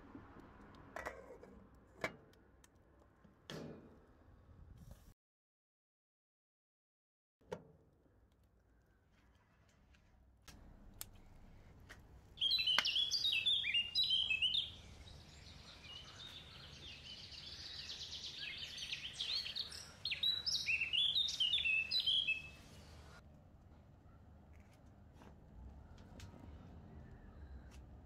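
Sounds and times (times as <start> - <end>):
songbird chirping and trilling: 12.4 - 23.2.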